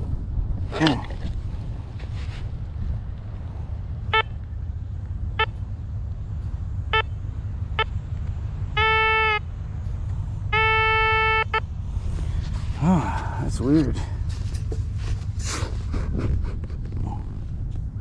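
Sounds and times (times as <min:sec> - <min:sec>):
low steady rumble: 0:00.0 - 0:18.0
metal detector beeps: 0:08.8 - 0:09.4, 0:10.5 - 0:11.6.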